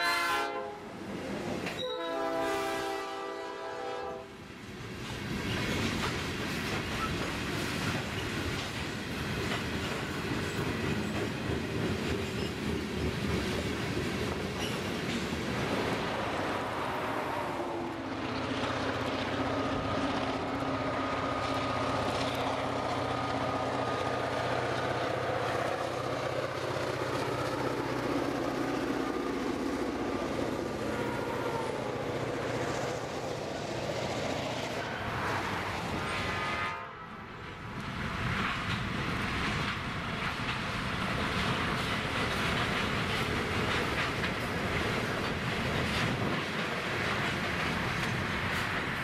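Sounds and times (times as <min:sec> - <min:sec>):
train wheels rolling and clacking: 0:04.5 - 0:16.6, 0:18.2 - 0:30.9, 0:37.3 - 0:49.0
locomotive engine humming: 0:08.2 - 0:49.0.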